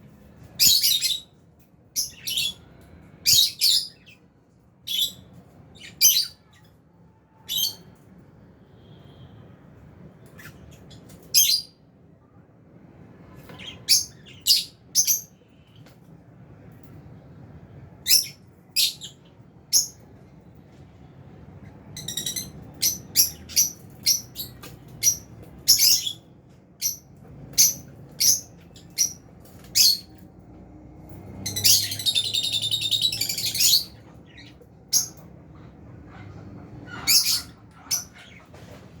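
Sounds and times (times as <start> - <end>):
lovebirds chirping: 13.4 - 15.9, 21.6 - 26.2, 31.4 - 36.2.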